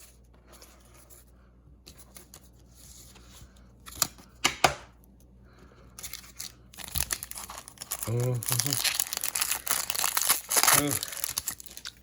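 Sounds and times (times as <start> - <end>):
trading cards rustling: 6.0 - 12.0.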